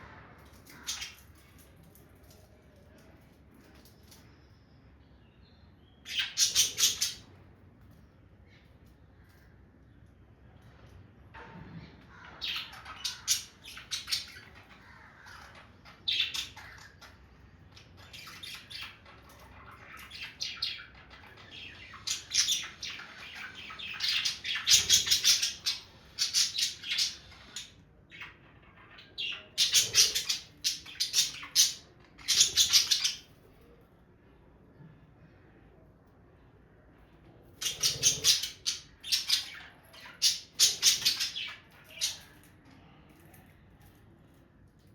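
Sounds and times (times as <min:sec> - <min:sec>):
budgerigars chattering and squawking: 0:00.7 - 0:01.4, 0:06.0 - 0:07.3, 0:12.0 - 0:33.3, 0:37.6 - 0:42.4.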